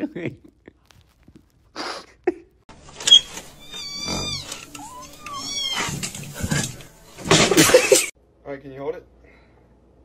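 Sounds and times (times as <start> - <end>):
cat meowing: 3.6 - 6.1.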